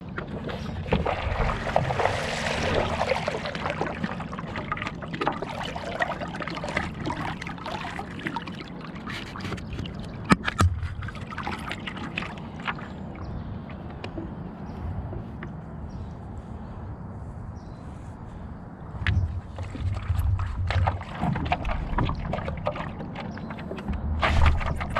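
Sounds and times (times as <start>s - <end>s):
paddle splashing through water: 0.0s - 13.5s, 19.1s - 24.9s.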